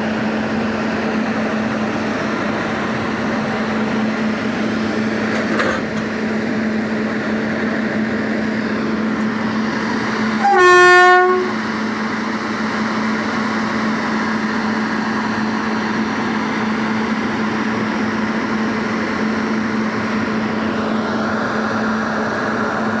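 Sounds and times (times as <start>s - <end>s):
locomotive engine humming: 0.0s - 23.0s
train horn blast: 10.3s - 11.7s.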